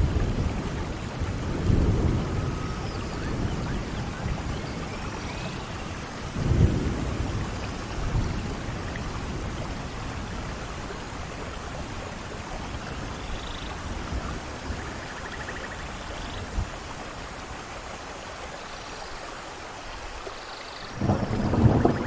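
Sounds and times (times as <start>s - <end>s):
thunder rumble: 0.0s - 13.1s, 21.0s - 22.0s
steady rain falling: 0.0s - 22.0s.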